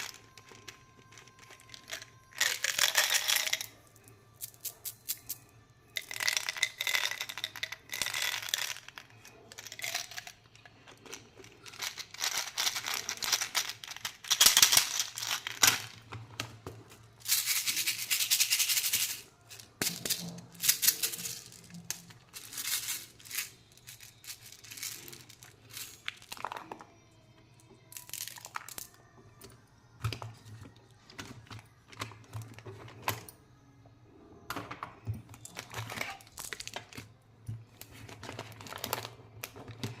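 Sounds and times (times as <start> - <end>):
plastic packaging crinkling: 0.0 - 3.6, 37.8 - 40.0.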